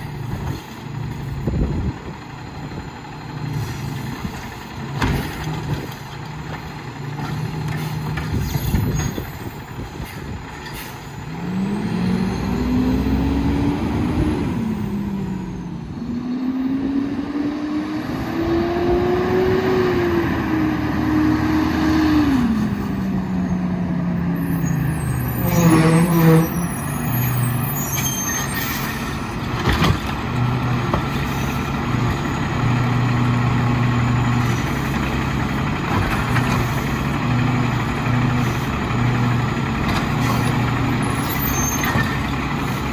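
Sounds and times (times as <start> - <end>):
diesel truck engine idling and revving: 0.0 - 42.9
knocks and clatter: 29.4 - 32.2.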